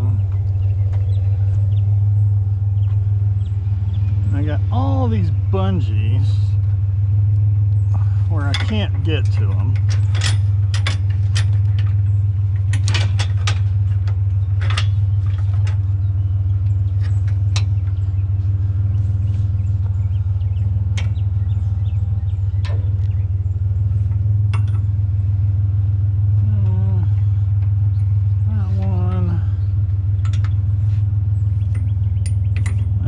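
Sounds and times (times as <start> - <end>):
truck engine idling: 0.0 - 33.0
metallic clinks and knocks: 8.5 - 15.8, 24.4 - 25.0, 30.2 - 30.8, 31.5 - 33.0.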